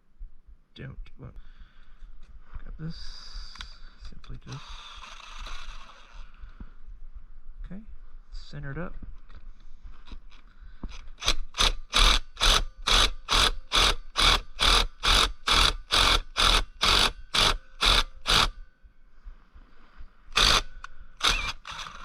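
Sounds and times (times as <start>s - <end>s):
ratchet wrench clicking: 11.0s - 18.6s, 20.4s - 22.0s.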